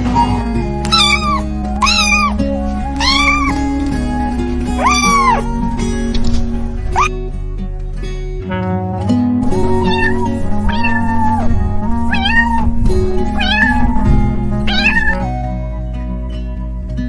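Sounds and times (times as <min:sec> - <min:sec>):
cat meowing: 0:00.0 - 0:03.6, 0:04.8 - 0:05.4, 0:09.6 - 0:15.2
background music with plucked strings: 0:00.0 - 0:17.0.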